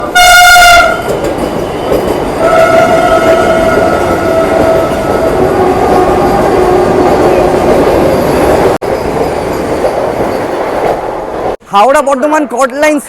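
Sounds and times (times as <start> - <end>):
train rumbling: 0.0 - 11.7
long train horn tone: 0.1 - 1.1, 2.4 - 7.0
train horn blast: 0.1 - 1.1, 2.4 - 5.2.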